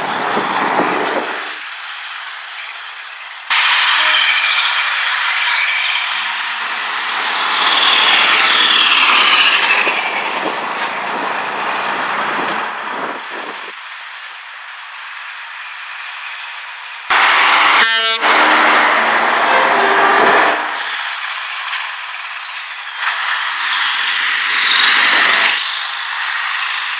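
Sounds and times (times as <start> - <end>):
truck air horn blasts: 3.5 - 5.0, 17.1 - 21.1
truck driving past: 17.1 - 21.6.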